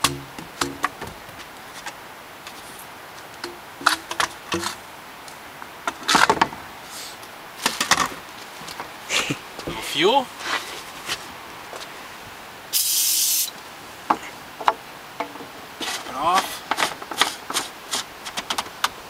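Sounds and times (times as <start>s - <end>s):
potato rammed down pipe: 0.0s - 1.0s.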